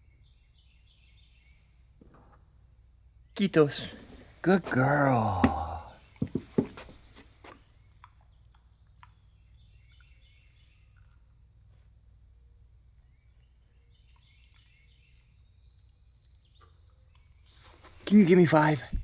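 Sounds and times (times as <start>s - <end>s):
faint bird chirps: 0.0s - 4.0s.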